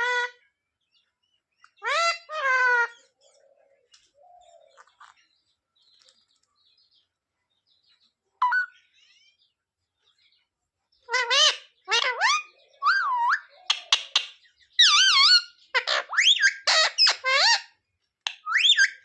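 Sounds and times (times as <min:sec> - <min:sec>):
parrot squawk: 0:00.0 - 0:00.4, 0:01.8 - 0:03.1, 0:11.1 - 0:19.0
parrot calling: 0:00.0 - 0:00.5, 0:01.6 - 0:03.2, 0:08.4 - 0:09.4, 0:11.0 - 0:19.0
faint parrot chatter: 0:00.0 - 0:06.5, 0:08.0 - 0:19.0.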